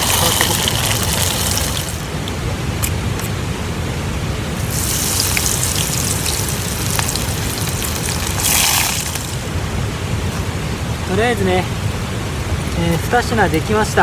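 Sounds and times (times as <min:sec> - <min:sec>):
tempura frying in hot oil: 0:00.0 - 0:02.1, 0:04.6 - 0:09.5
steady low rumble: 0:00.0 - 0:14.0.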